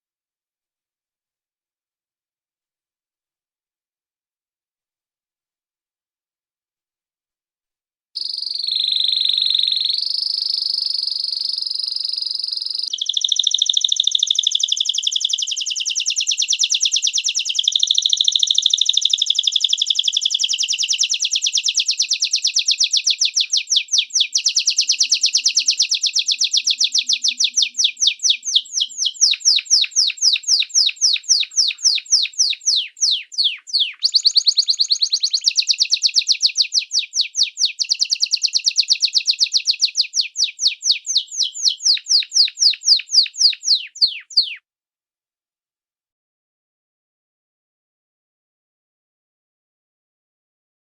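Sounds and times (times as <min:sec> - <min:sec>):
songbird whistling and trilling: 0:08.2 - 0:44.6.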